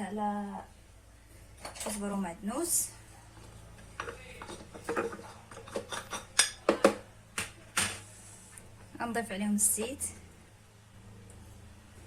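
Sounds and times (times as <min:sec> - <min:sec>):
utensils and dishes clinking: 0:03.9 - 0:07.0.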